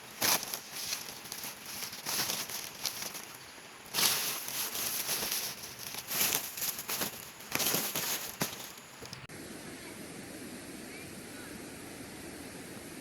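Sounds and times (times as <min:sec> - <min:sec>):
rustling and crackling: 0:00.0 - 0:09.3
steady high-pitched hiss: 0:00.0 - 0:13.0.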